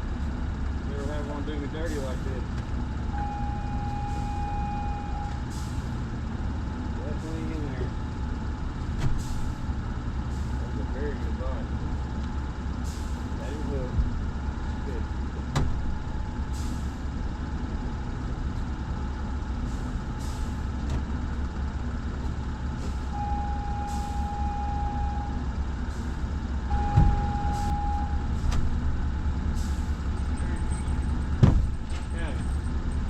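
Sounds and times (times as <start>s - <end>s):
steady low rumble: 0.0s - 33.0s
long electronic beeps: 3.1s - 5.4s, 23.1s - 25.5s, 26.7s - 28.4s.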